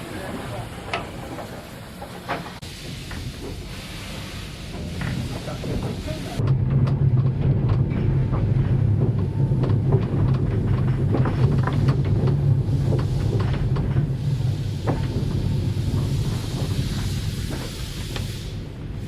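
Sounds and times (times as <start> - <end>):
train rumbling along track: 0.0 - 19.0
clanks and knocks: 4.8 - 18.3.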